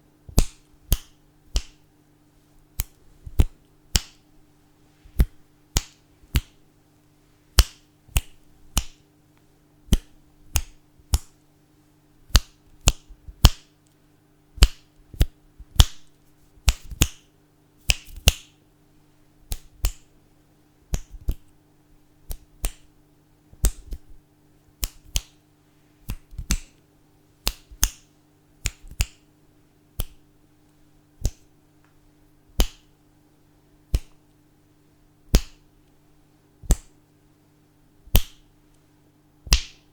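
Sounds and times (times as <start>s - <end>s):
faint steady hum: 0.0s - 39.9s
fingers snapping: 0.3s - 1.8s, 2.8s - 4.2s, 5.2s - 6.6s, 7.5s - 9.0s, 9.9s - 11.4s, 12.3s - 14.0s, 14.6s - 18.6s, 19.5s - 20.1s, 20.9s - 21.6s, 22.2s - 22.9s, 23.6s - 24.2s, 24.8s - 25.4s, 26.0s - 26.8s, 27.4s - 29.3s, 30.0s - 30.2s, 31.2s - 31.5s, 32.5s - 32.9s, 33.9s - 34.2s, 35.3s - 35.6s, 36.6s - 37.0s, 38.1s - 38.4s, 39.4s - 39.9s.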